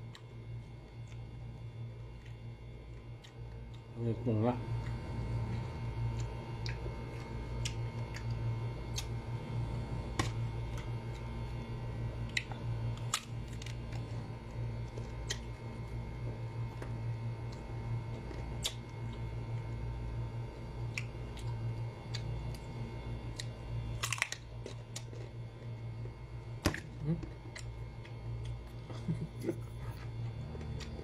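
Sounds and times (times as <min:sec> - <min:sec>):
steady low hum: 0:00.0 - 0:31.0
crisp chewing clicks: 0:02.1 - 0:03.9, 0:04.8 - 0:09.2, 0:20.8 - 0:22.6.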